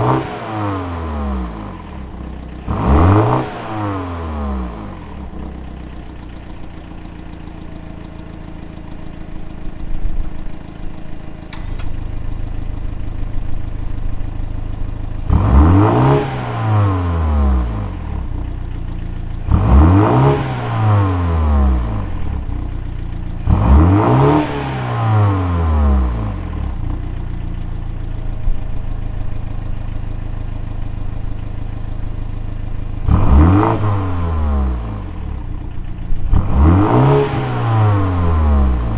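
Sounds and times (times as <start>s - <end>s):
car engine idling and revving: 0.0s - 38.9s
exhaust valve click: 11.4s - 12.0s.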